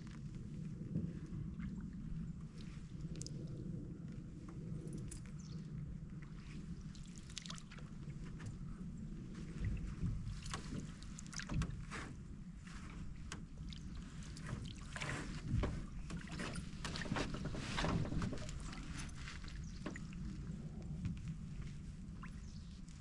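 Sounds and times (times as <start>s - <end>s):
low steady rumble: 0.0s - 23.0s
paddle swishing through water: 6.1s - 23.0s.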